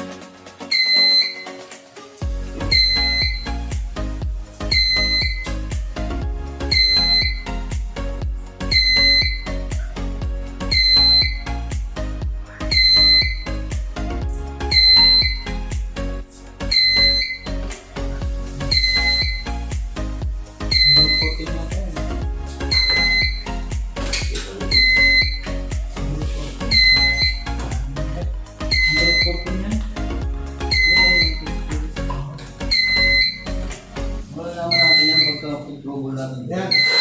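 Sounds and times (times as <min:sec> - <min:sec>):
background music with beat: 0:00.0 - 0:37.0
high electronic beep: 0:00.7 - 0:01.6, 0:02.6 - 0:03.8, 0:04.6 - 0:05.8, 0:06.6 - 0:07.6, 0:08.7 - 0:09.6, 0:10.6 - 0:11.6, 0:12.7 - 0:13.8, 0:14.7 - 0:15.7, 0:16.7 - 0:17.7, 0:18.6 - 0:19.7, 0:20.7 - 0:21.5, 0:22.6 - 0:25.8, 0:26.6 - 0:27.6, 0:28.6 - 0:29.7, 0:30.7 - 0:31.6, 0:32.7 - 0:33.6, 0:34.7 - 0:35.7, 0:36.7 - 0:37.0.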